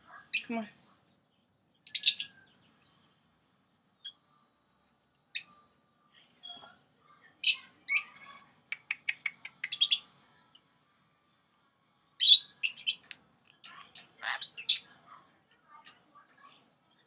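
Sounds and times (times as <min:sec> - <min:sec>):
lovebirds chirping: 0:00.1 - 0:03.1, 0:03.7 - 0:05.8, 0:07.5 - 0:10.1, 0:12.2 - 0:15.2.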